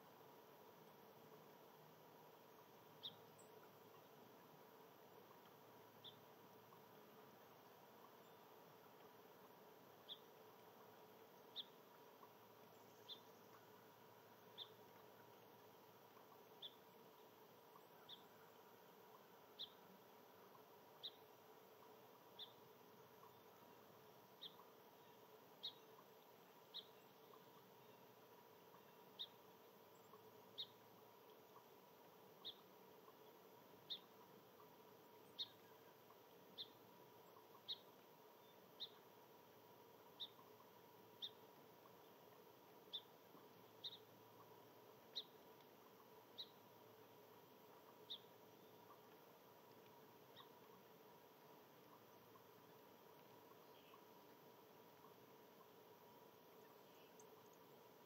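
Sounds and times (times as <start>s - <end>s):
faint steady hum: 0.0s - 58.0s
small bird chip call: 11.5s - 11.8s, 40.2s - 40.5s, 43.8s - 44.5s.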